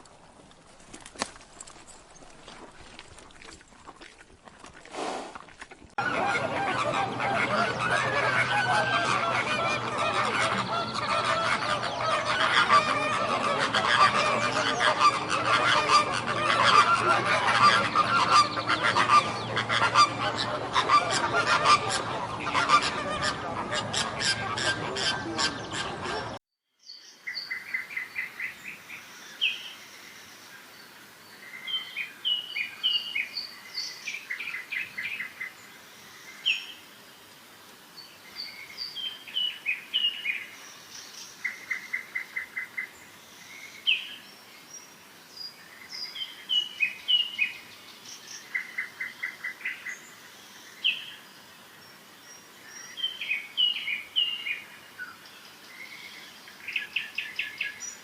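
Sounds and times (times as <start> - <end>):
birds chirping: 4.0 - 29.8
faint hiss: 4.9 - 5.5, 26.8 - 58.0.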